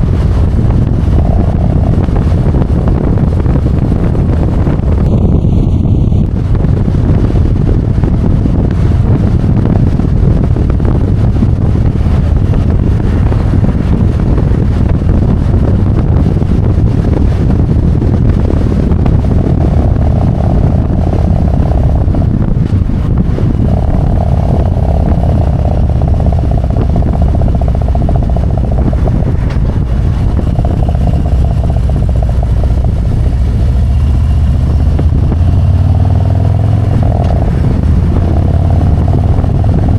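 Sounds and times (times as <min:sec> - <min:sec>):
high steady drone: 0:00.0 - 0:07.2, 0:17.4 - 0:39.9
motorcycle engine rumble: 0:00.0 - 0:39.9
wind noise: 0:00.0 - 0:39.9.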